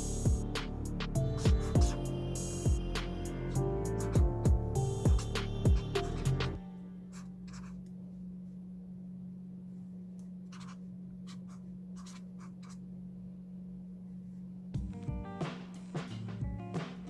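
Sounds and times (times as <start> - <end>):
steady low hum: 0.0 - 17.0
scratching strokes on paper: 4.8 - 7.9, 10.5 - 12.8.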